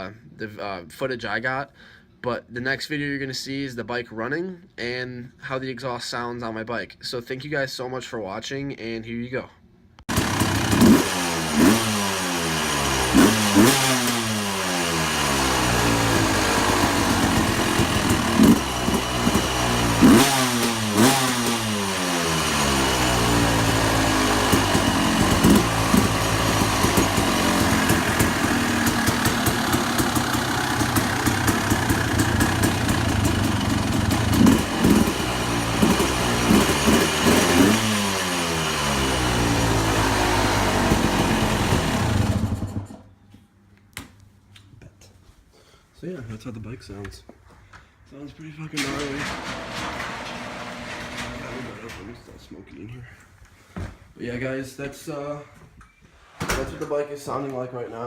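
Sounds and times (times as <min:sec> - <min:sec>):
dirt bike engine revving: 0:10.1 - 0:43.1.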